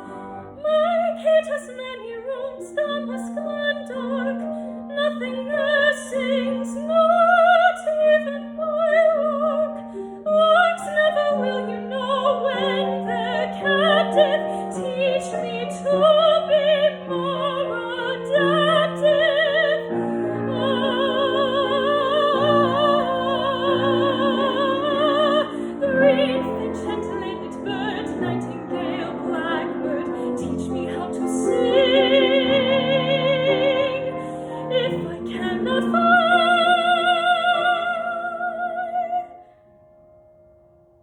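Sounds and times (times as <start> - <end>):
soprano singing with vibrato: 0.0 - 39.4
piano accompaniment: 0.0 - 41.0.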